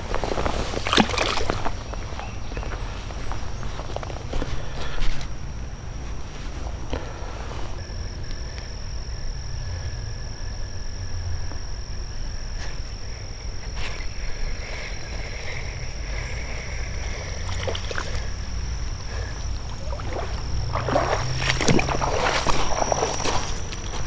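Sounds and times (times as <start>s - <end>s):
splashy rustling in water: 0.0s - 3.8s, 17.1s - 24.0s
high-pitched insect drone: 7.8s - 24.0s
frog calls: 11.1s - 24.0s.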